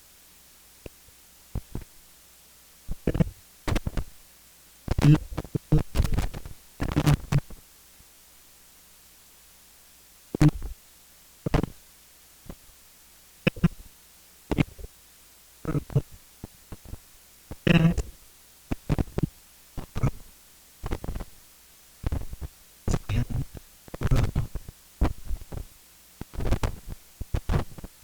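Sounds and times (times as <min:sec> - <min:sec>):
guttural vocal sounds: 0:03.0 - 0:03.3, 0:04.9 - 0:05.9, 0:10.4 - 0:10.7, 0:13.5 - 0:13.8, 0:14.5 - 0:14.9, 0:15.6 - 0:16.1, 0:17.6 - 0:18.1, 0:19.8 - 0:20.2
mouth clicks: 0:13.5 - 0:13.7.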